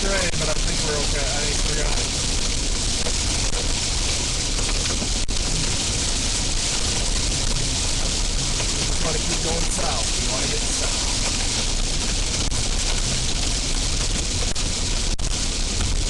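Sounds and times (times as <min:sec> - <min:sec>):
heavy rain on car: 0:00.0 - 0:16.0
road and tyre noise: 0:00.0 - 0:16.0.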